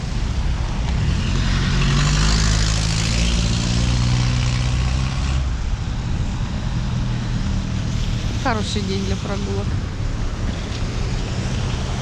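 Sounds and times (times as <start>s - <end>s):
vehicle passing by: 0.0s - 12.0s.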